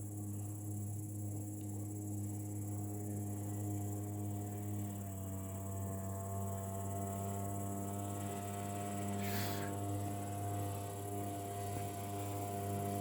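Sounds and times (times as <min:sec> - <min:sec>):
falling hiss: 0:09.2 - 0:09.8.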